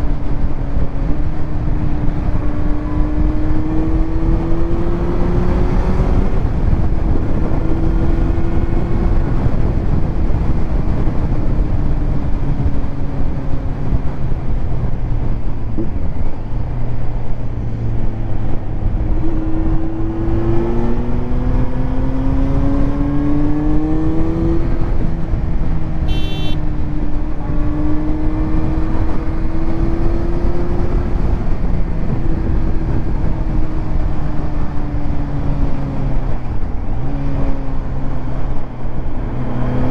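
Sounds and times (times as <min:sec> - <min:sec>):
motorcycle engine accelerating: 0:00.1 - 0:14.7, 0:18.5 - 0:39.9
brief high beep: 0:26.1 - 0:26.6.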